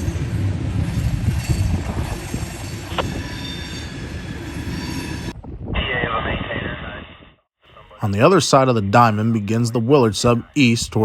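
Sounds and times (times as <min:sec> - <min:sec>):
rumble of wheels on rail: 0:00.0 - 0:05.4
wheel flanges squealing: 0:00.0 - 0:05.4.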